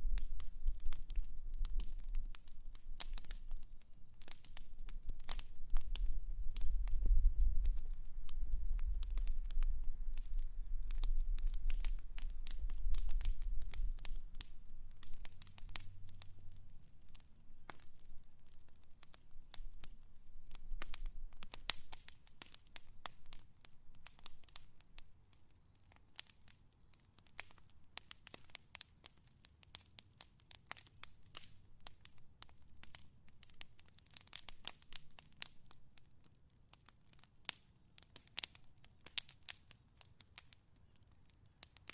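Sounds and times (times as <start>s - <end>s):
fire crackling: 0.0s - 41.9s.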